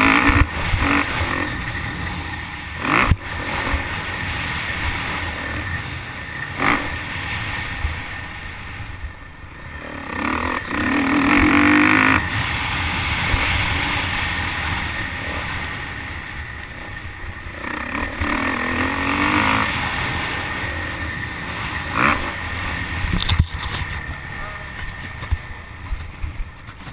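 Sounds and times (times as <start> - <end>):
motocross bike engine revving: 0.0 - 8.8, 9.6 - 25.5.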